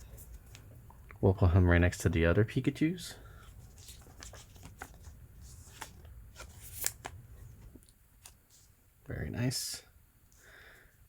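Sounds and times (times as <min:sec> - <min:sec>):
cards rustling and clicking: 0:03.4 - 0:08.7.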